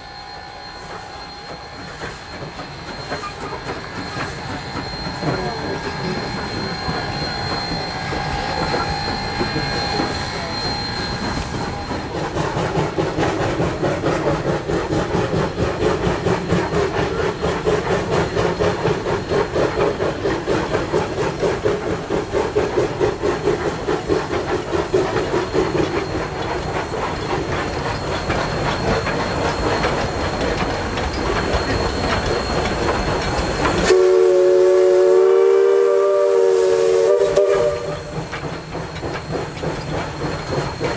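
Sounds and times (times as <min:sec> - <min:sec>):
steam locomotive exhaust: 0:00.0 - 0:40.9
rail clatter: 0:01.3 - 0:40.9
steam whistle: 0:33.6 - 0:38.3.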